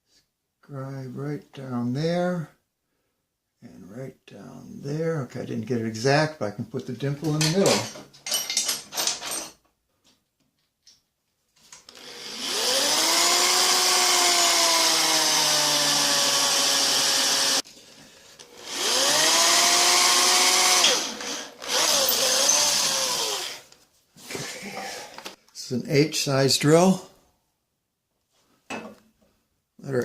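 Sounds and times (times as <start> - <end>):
electric drill whining: 11.9 - 17.6, 18.4 - 23.8.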